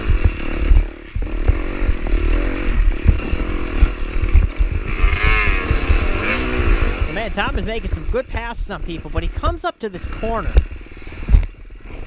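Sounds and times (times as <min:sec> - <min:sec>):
low thumps: 0:00.0 - 0:09.6
dirt bike engine revving: 0:00.0 - 0:12.0.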